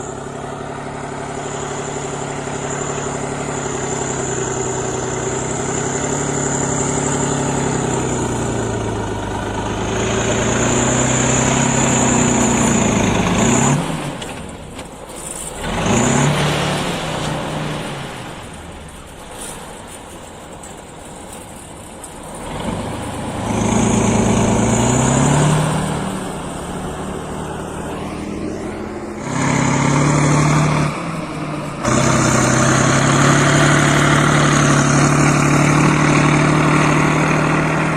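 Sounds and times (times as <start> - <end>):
tractor diesel engine revving: 0.0 - 37.9.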